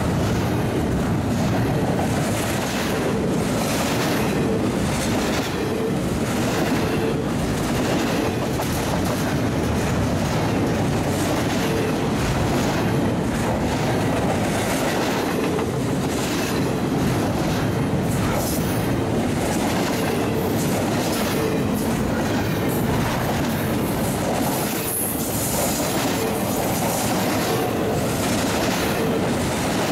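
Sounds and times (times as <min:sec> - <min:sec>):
freight train wheels rumbling: 0:00.0 - 0:29.9.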